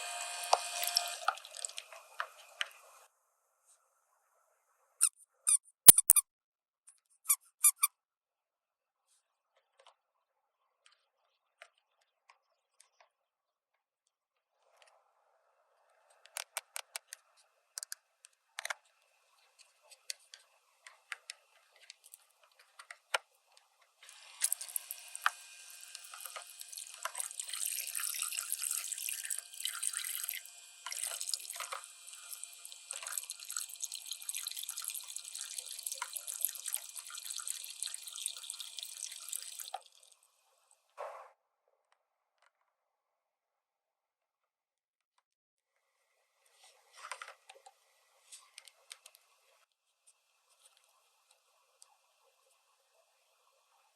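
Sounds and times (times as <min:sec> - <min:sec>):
water running from faucet: 0:00.0 - 0:03.1, 0:24.0 - 0:40.2.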